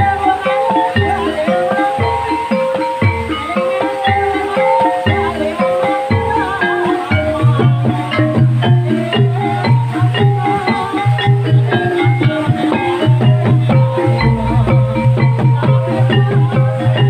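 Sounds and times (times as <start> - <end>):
gamelan music: 0.0 - 17.0
mallet-struck metal notes: 0.0 - 17.0
sustained low tone: 13.6 - 16.7.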